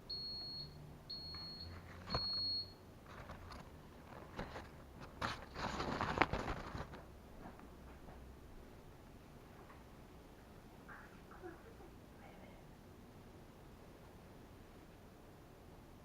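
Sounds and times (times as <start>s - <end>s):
rustling handling noise: 1.6s - 8.3s.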